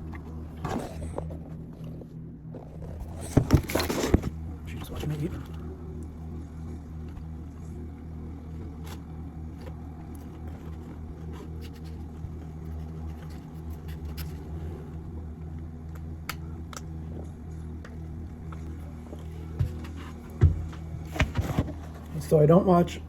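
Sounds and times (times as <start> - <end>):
food packaging clicks and scrapes: 0.0 - 4.4, 8.6 - 15.0
low mechanical hum: 0.0 - 23.0.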